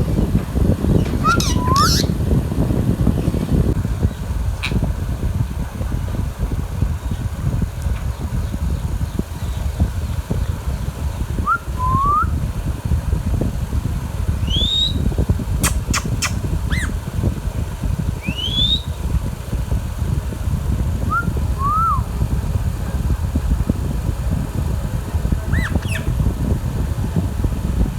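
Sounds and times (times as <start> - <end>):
steady low rumble: 0.0 - 27.9
parakeet whistled calls: 1.0 - 2.2, 14.4 - 17.0, 18.2 - 19.0, 21.1 - 22.0, 25.5 - 26.2.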